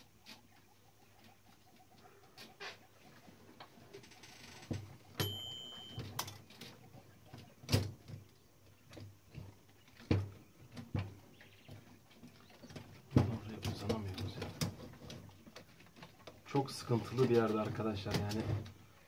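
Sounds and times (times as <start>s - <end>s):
high-pitched tone: 5.2s - 6.2s.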